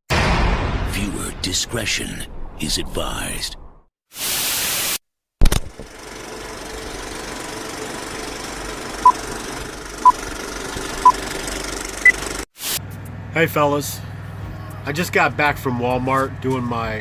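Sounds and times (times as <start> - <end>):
diesel truck engine idling: 5.9 - 12.4.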